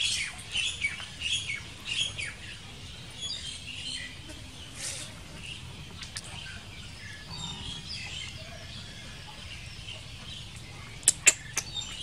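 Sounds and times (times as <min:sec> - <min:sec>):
high bird chirps: 0:07.0 - 0:10.0.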